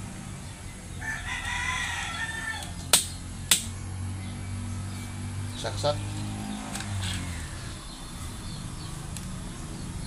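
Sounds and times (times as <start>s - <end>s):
rooster crowing: 1.0s - 2.9s.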